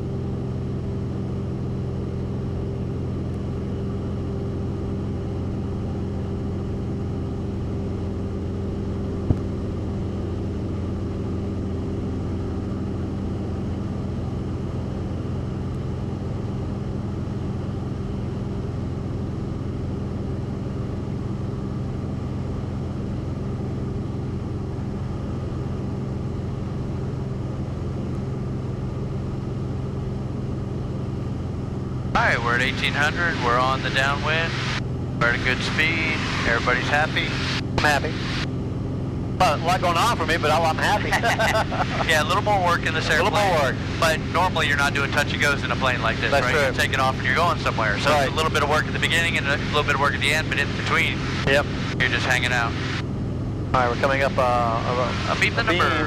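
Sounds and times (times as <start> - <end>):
aircraft engine and propeller drone: 0.0 - 56.0.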